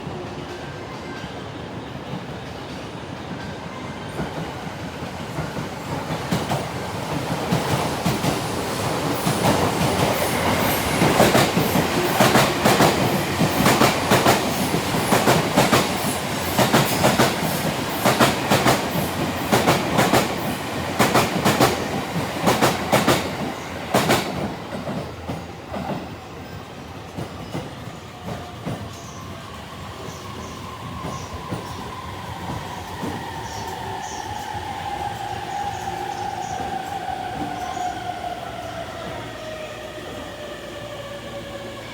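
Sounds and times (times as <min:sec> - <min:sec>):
train rumble passing: 0:04.1 - 0:26.2.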